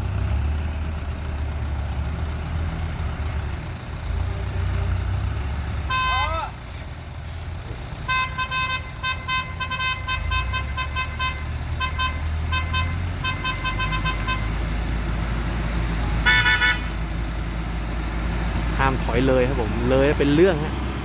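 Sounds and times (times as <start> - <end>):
diesel engine running: 0.0 - 21.0
vehicle horn toots: 5.9 - 6.5, 8.1 - 14.7, 16.2 - 17.1.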